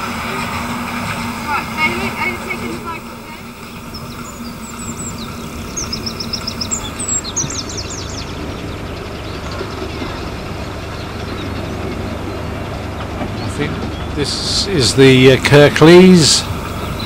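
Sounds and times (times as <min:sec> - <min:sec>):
steady low rumble: 0:00.0 - 0:17.0
bird chirping: 0:02.2 - 0:15.5.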